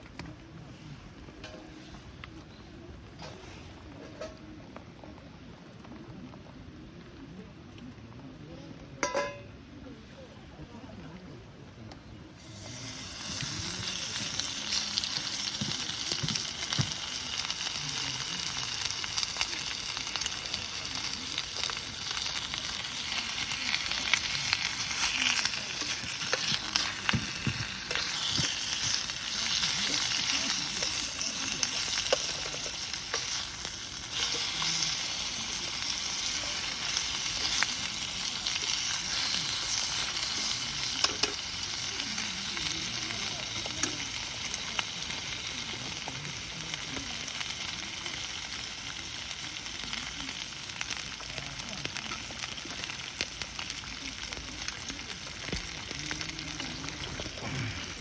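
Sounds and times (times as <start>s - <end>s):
food sizzling in a pan: 12.4s - 58.0s
stirring: 22.4s - 39.9s.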